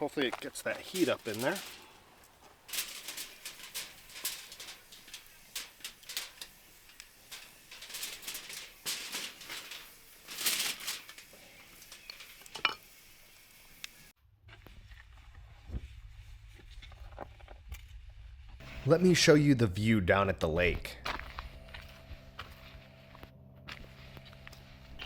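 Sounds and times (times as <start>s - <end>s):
campfire crackling and popping: 0.0s - 14.2s.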